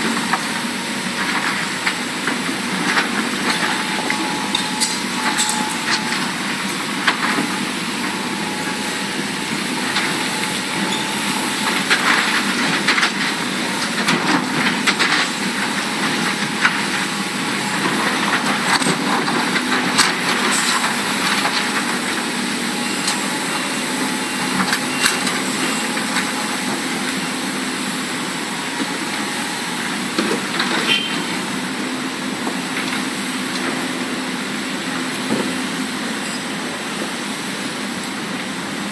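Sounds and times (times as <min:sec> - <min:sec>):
diesel engine drone: 0:00.0 - 0:38.9
excavator clanks and knocks: 0:00.1 - 0:22.3, 0:29.9 - 0:34.0, 0:35.1 - 0:37.2.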